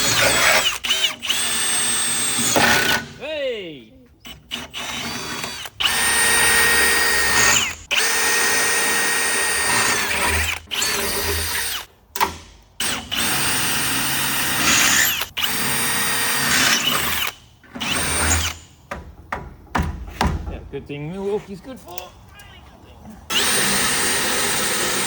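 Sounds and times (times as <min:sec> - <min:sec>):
power drill whining: 0:00.0 - 0:03.1, 0:04.2 - 0:18.8, 0:23.3 - 0:25.0.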